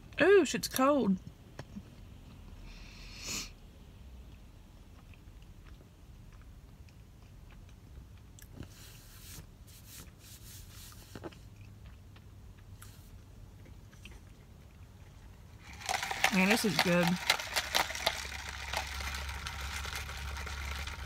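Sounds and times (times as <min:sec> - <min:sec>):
person chewing: 0:04.2 - 0:09.0, 0:10.8 - 0:16.3.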